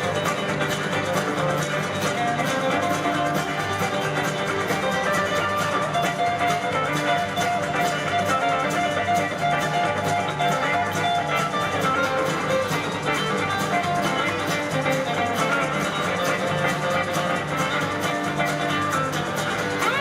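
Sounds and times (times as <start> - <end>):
lead guitar holding notes: 0.0 - 20.0
live country-rock band: 0.0 - 20.0.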